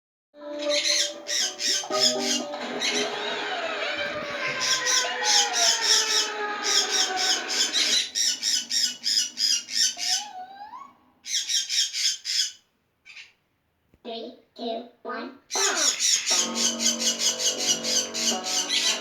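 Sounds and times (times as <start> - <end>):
birds squawking: 0.4 - 13.3, 15.5 - 19.0
rising whistled call: 0.6 - 10.3.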